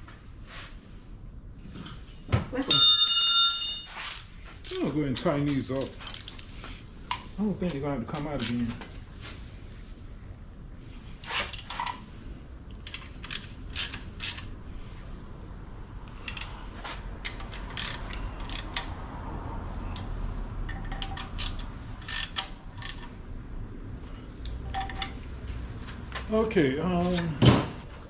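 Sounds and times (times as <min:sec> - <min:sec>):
hand ratchet clicking: 0:12.9 - 0:14.5, 0:16.2 - 0:16.6, 0:17.2 - 0:19.0, 0:20.7 - 0:23.1.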